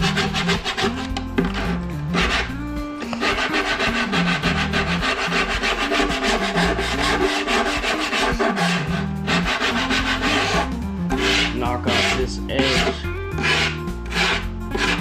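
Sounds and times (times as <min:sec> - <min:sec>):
file rasping on foam: 0:00.0 - 0:15.0.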